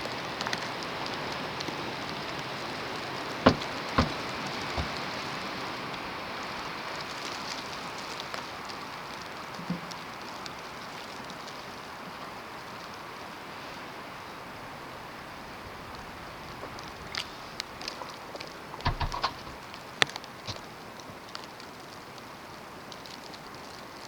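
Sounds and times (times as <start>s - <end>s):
low thump: 3.5s - 4.2s.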